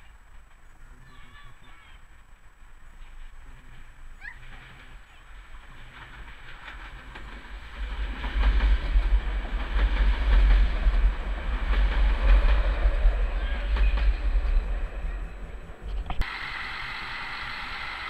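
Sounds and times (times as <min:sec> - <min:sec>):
train wheels clattering over rail joints: 0:02.1 - 0:14.9.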